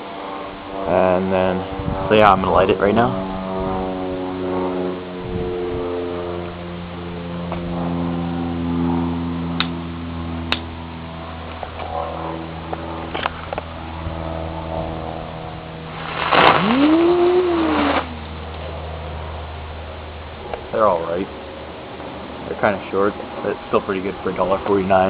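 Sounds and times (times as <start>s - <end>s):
low engine-like hum: 0.0s - 25.0s
ground-spinner firework hissing: 15.8s - 18.6s
firework wail: 15.9s - 18.5s.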